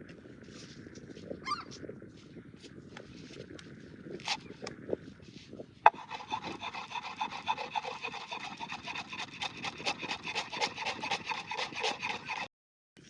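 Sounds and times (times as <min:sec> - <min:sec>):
tool rasping back and forth: 0:04.2 - 0:04.5, 0:05.9 - 0:12.5.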